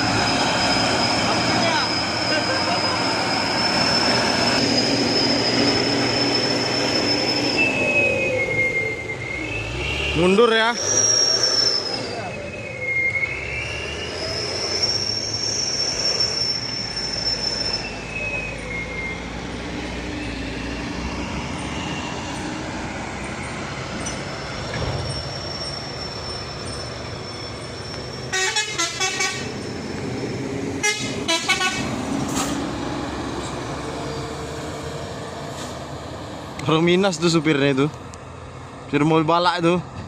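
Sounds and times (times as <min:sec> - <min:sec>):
high-pitched squeal: 0:00.0 - 0:36.0
heavy trucks climbing: 0:00.0 - 0:40.0
truck horn short blasts: 0:28.3 - 0:29.5, 0:30.8 - 0:31.9.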